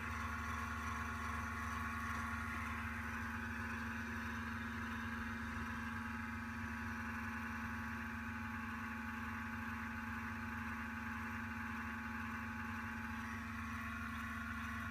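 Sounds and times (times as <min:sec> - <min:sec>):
machine hum: 0:13.1 - 0:14.9.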